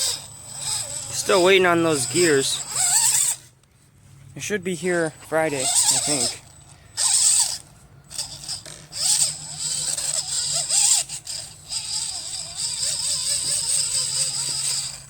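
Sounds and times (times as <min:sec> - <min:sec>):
rc car motor whirring: 0:00.0 - 0:03.6, 0:05.1 - 0:15.0
rattling: 0:05.6 - 0:15.0.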